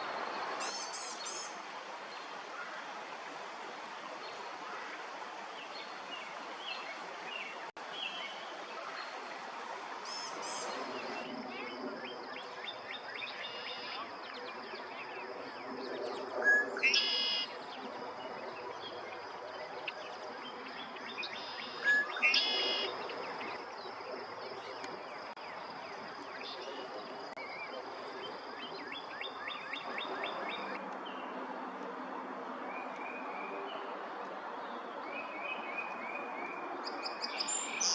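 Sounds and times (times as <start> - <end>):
bird song phrase: 19.6 - 23.6.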